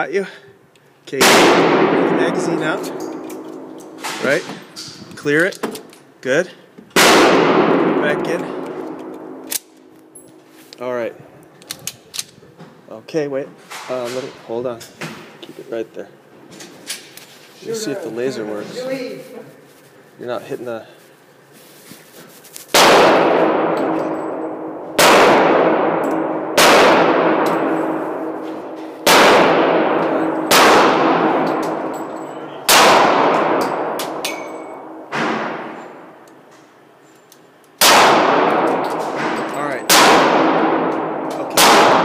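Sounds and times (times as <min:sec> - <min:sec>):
pistol shots with ringing echo: 0:01.2 - 0:04.2, 0:07.0 - 0:09.8, 0:22.7 - 0:36.2, 0:37.8 - 0:42.0.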